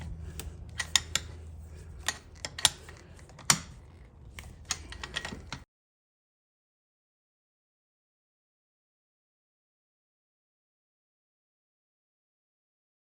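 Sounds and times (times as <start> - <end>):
steady low hum: 0.0 - 5.6
tools and metal parts clinking: 0.0 - 5.6.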